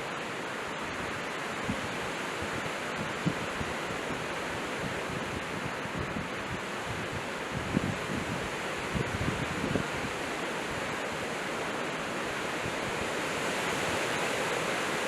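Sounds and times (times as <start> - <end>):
strong blizzard wind: 0.0 - 15.0
gusts buffeting microphone: 1.0 - 11.0.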